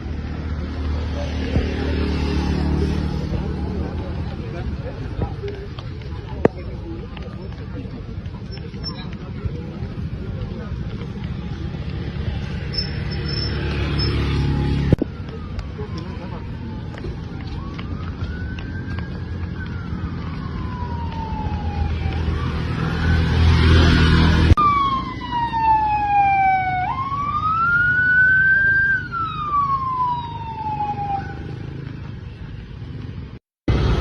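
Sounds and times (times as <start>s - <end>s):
engine and traffic rumble: 0.0s - 34.0s
emergency siren wailing: 11.6s - 33.0s.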